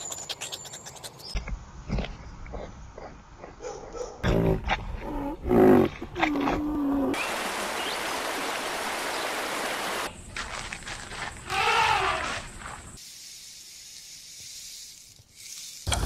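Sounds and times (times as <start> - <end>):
rhinoceros calling: 11.5 - 12.4
steady rushing hiss: 13.0 - 16.0.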